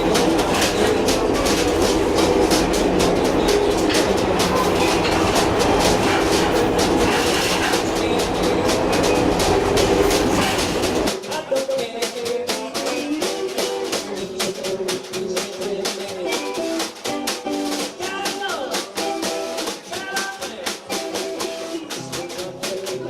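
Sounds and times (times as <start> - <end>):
train rumbling on rails: 0.0 - 11.2
plucked string music: 0.0 - 23.0.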